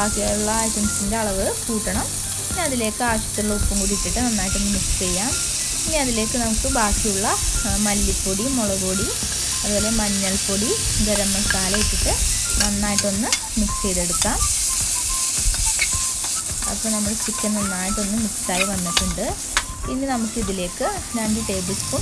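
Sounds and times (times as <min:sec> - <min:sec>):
chicken sizzling in hot oil: 0:00.0 - 0:22.0
spatula scraping and clicking: 0:14.4 - 0:17.5, 0:18.5 - 0:19.7.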